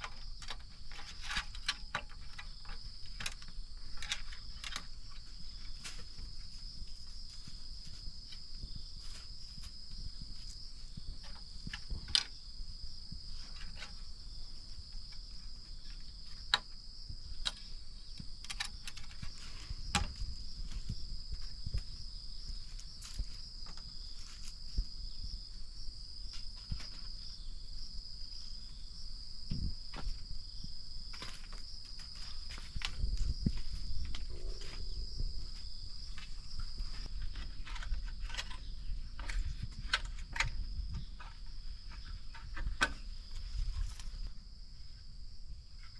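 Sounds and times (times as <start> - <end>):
insect chorus trilling: 0.0 - 45.9.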